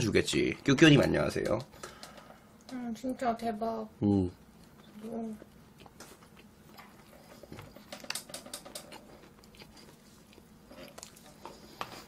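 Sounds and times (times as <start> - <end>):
chewing with mouth smacks: 4.6 - 12.0.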